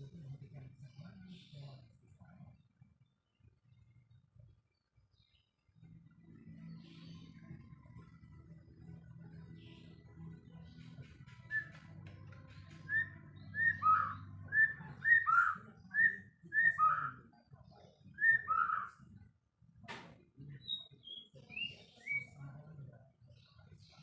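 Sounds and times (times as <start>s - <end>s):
bird whistling song: 11.3s - 17.2s, 18.2s - 19.0s, 20.6s - 22.4s.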